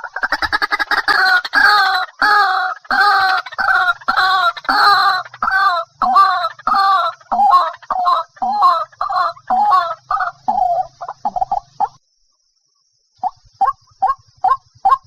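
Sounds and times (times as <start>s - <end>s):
waterhen calling: 0.0s - 12.0s.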